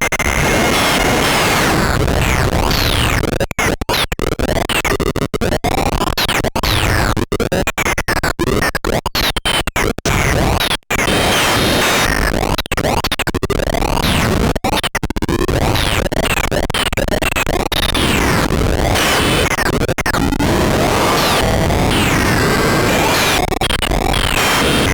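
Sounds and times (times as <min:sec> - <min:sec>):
harsh glitchy synthesized noise: 0:00.1 - 0:05.5, 0:15.3 - 0:24.9.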